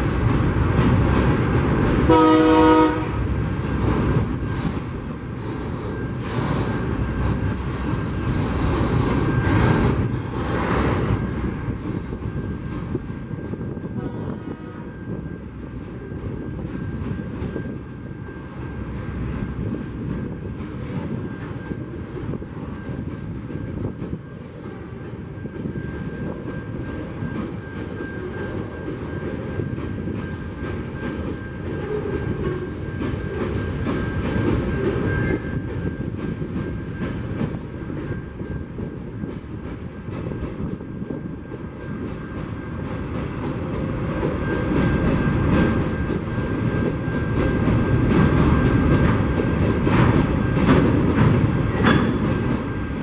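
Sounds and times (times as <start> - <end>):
freight train wheels rumbling: 0.0 - 53.0
wheels clacking over rail joints: 41.5 - 53.0.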